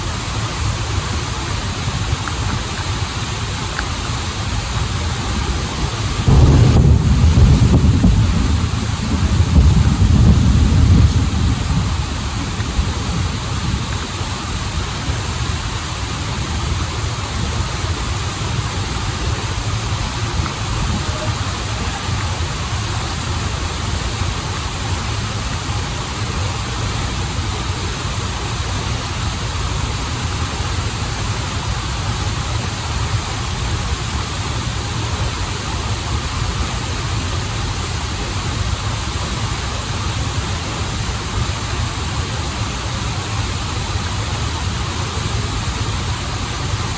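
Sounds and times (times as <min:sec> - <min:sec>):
waterfall and stream rushing: 0:00.0 - 0:46.9.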